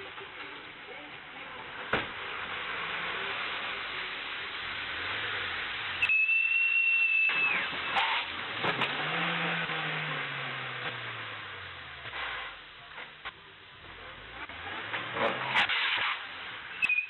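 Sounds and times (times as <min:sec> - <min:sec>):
car road and wind noise: 0:07.3 - 0:16.8.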